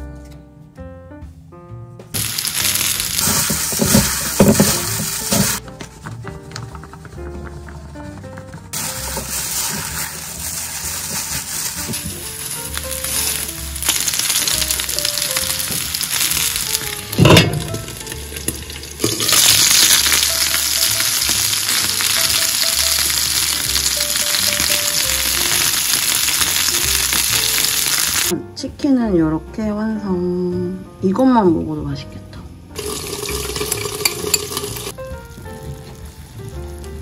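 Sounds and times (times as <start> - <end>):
soft background music: 0.0 - 37.0
chicken sizzling in oil: 2.2 - 5.6, 8.7 - 28.3, 32.8 - 37.0
sudden loud sizzle burst: 2.2 - 5.6, 8.8 - 28.3.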